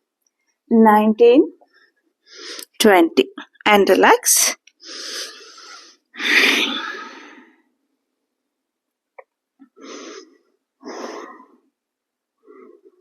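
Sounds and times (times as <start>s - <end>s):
person exhaling heavily: 4.9s - 7.5s.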